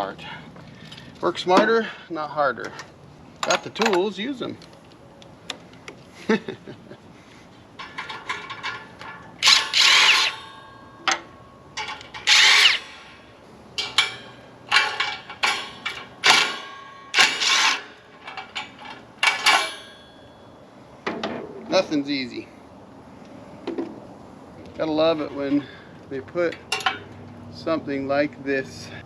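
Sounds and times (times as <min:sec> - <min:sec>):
tools and metal clinking: 0:00.7 - 0:05.8, 0:07.7 - 0:21.5, 0:26.5 - 0:27.4
power drill bursts: 0:09.4 - 0:10.5, 0:12.2 - 0:13.2, 0:17.2 - 0:17.8.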